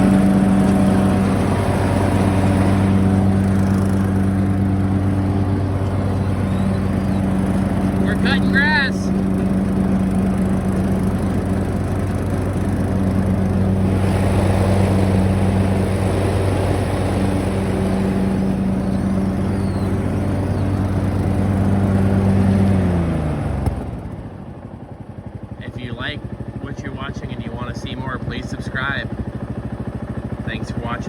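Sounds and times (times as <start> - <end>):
mower blades cutting grass: 0.0 - 24.3
lawn mower engine running: 0.0 - 31.0.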